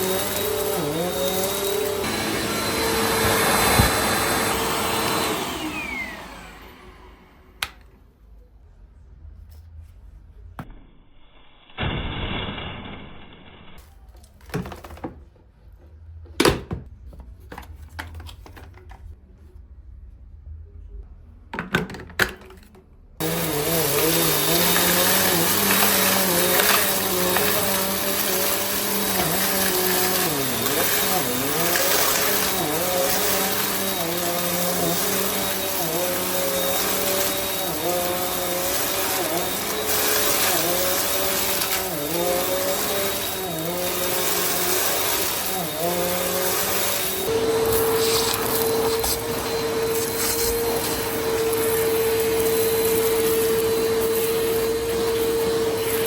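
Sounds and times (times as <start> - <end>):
vacuum cleaner motor running: 0.0 - 7.8, 23.2 - 56.0.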